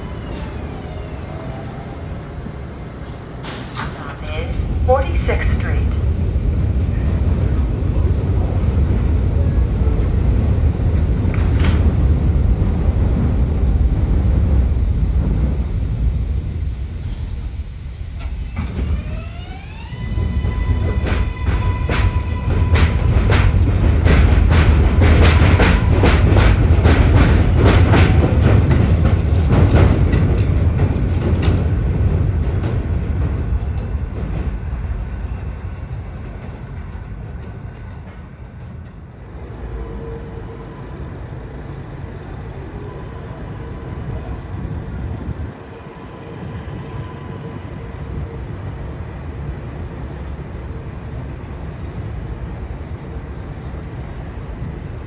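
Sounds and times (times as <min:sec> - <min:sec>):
subway train wheels clacking: 0:00.0 - 0:55.0.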